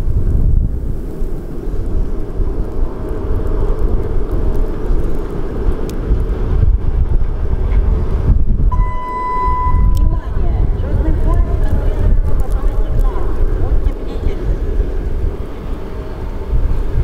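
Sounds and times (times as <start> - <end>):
approaching train rumble: 0.0 - 17.0
wind buffeting microphone: 0.0 - 17.0
high train horn note: 8.7 - 11.6.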